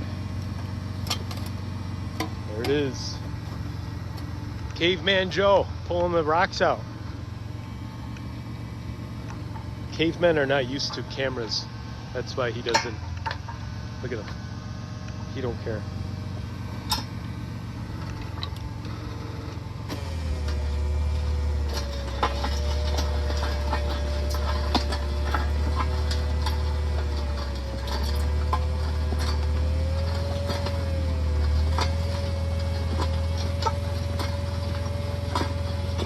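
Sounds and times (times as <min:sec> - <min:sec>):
auger engine hum and whine: 0:00.0 - 0:36.0
stones knocking against auger: 0:21.6 - 0:36.0.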